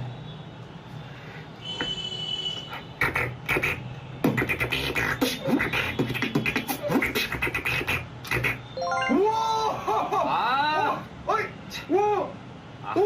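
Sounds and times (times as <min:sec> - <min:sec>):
beatboxing clicks and percussive hits: 0:02.6 - 0:08.7
vocal swoops falling in pitch: 0:04.4 - 0:09.8.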